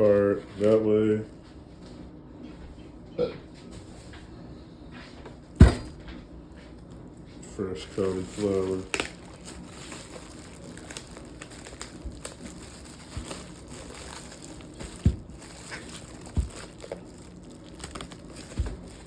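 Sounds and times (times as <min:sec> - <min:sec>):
plastic wrapping crinkling: 0:00.0 - 0:00.9, 0:06.7 - 0:19.0
dull thumps: 0:05.6 - 0:06.2, 0:12.0 - 0:19.0.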